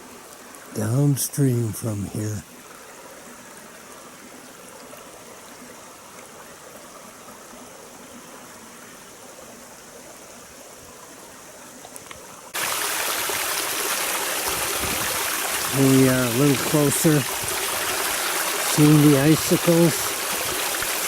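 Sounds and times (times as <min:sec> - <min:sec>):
waterfall rushing: 0:12.6 - 0:21.0.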